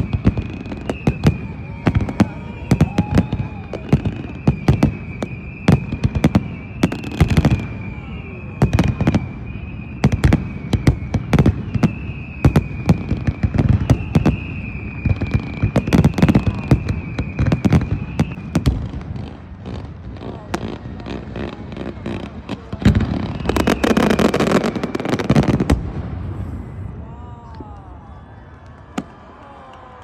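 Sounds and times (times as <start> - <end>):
fireworks cracks and bangs: 0.0 - 30.0.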